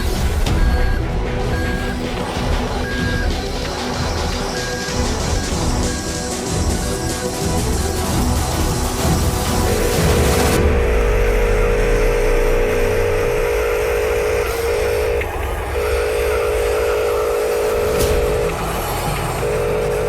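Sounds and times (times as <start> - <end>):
small electric motor whine: 9.5 - 20.0.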